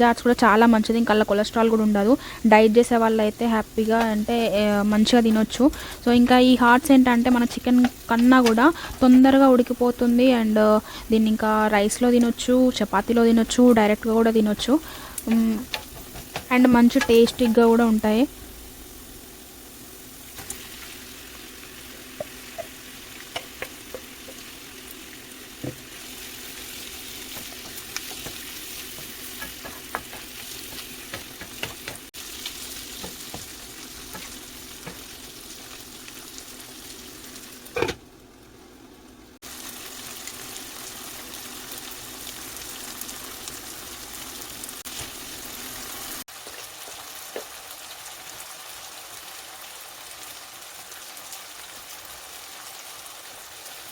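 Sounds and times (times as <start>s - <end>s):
curry sizzling in a pan: 0.2s - 38.4s, 39.4s - 53.9s
spoon scraping a pan: 22.0s - 24.5s, 26.6s - 32.1s.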